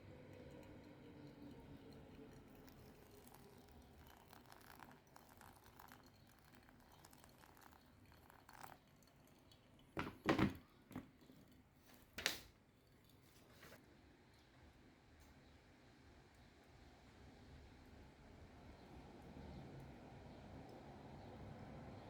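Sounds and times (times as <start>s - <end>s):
faint handling noises: 10.0s - 13.8s.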